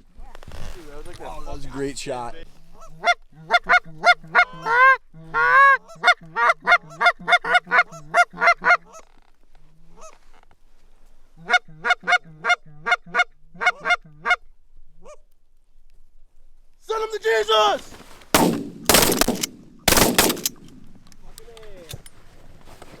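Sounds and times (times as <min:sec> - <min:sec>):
goose honking: 0:02.8 - 0:09.1, 0:11.4 - 0:14.4.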